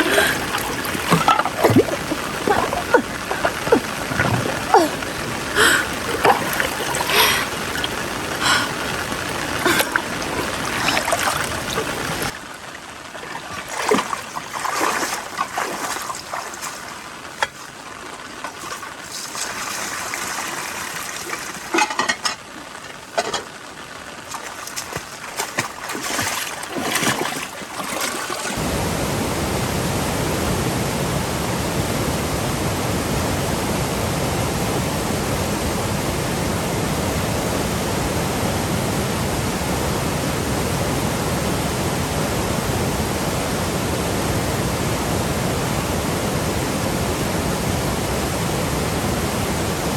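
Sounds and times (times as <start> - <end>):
water trickling and sloshing: 0.0 - 28.7
water splashes: 0.0 - 29.2
water rushing: 0.0 - 49.9.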